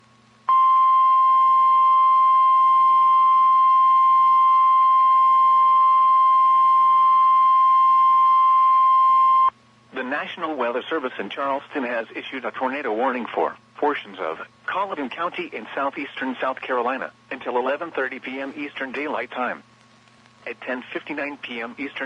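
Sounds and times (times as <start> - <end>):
steady alarm tone: 0.5 - 9.5.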